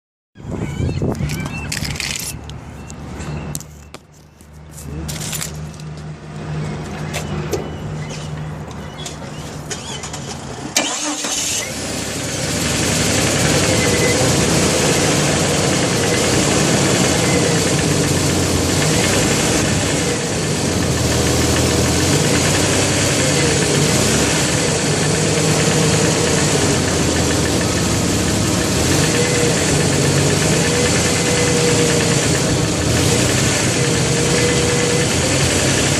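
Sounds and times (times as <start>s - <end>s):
engine starting and running: 5.0s - 35.9s
engine knocking: 12.4s - 35.9s.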